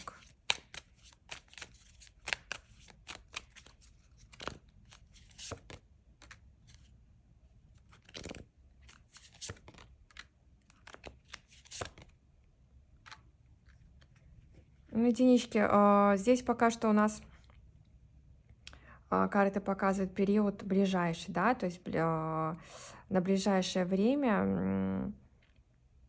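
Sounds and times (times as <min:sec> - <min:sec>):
cards being shuffled: 0:00.0 - 0:07.0, 0:07.7 - 0:12.2, 0:12.9 - 0:14.8.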